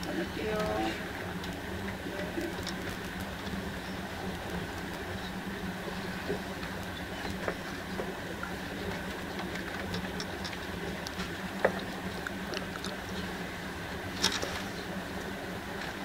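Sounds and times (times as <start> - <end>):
train interior hum and rumble: 0.0 - 16.0
small clicks and knocks: 6.2 - 13.3.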